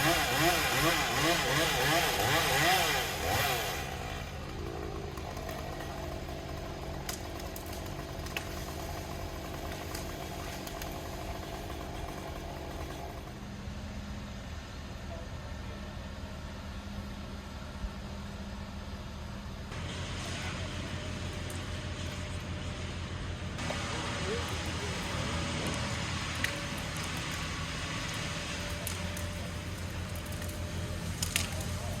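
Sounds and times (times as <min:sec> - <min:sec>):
engine revving: 0:00.0 - 0:10.8
engine idling: 0:03.0 - 0:32.0.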